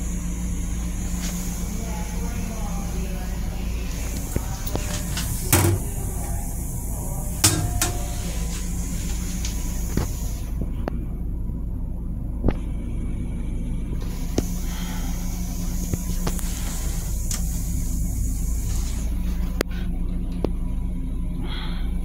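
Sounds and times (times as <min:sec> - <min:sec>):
train low rumble: 0:00.0 - 0:22.0
sharp knocks and rattles: 0:04.6 - 0:06.2, 0:07.4 - 0:08.4
faint hiss: 0:14.0 - 0:19.5.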